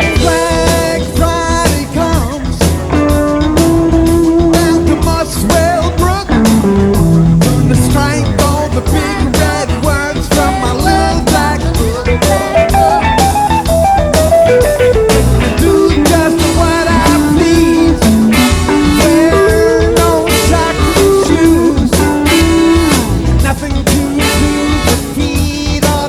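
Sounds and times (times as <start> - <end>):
rock music with guitar and drums: 0.0 - 26.0.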